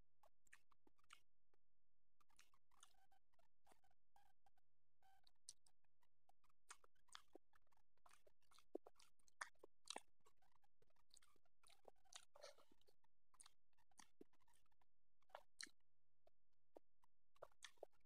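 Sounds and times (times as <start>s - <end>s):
faint wet chewing: 0.4s - 1.2s, 2.2s - 3.0s, 6.7s - 15.8s, 16.7s - 18.0s.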